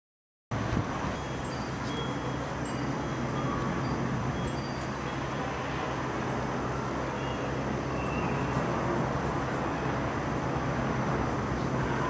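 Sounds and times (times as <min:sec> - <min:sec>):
low rumble of moving air: 0:00.5 - 0:12.0
faint high ringing tones: 0:01.0 - 0:08.6.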